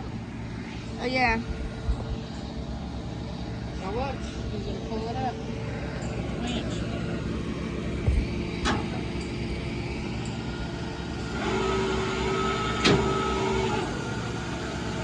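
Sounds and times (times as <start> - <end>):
truck engine idling: 0.0 - 15.0
winch whine: 0.0 - 15.0
low thump: 8.0 - 8.8.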